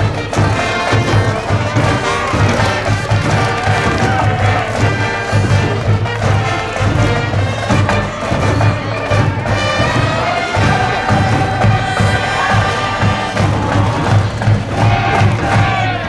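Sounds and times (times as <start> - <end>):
brass instruments playing: 0.0 - 15.8
bass drum beat: 0.0 - 16.0.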